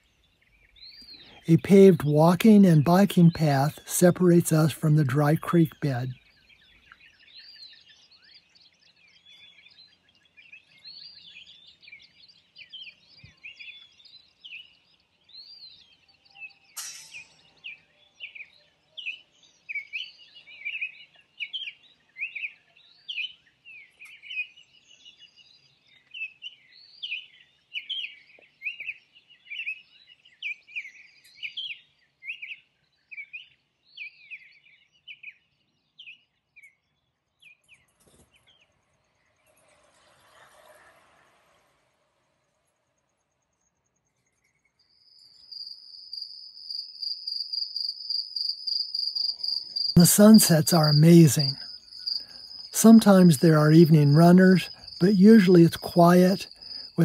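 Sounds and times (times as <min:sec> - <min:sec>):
flock of birds twittering: 0:49.2 - 0:57.0.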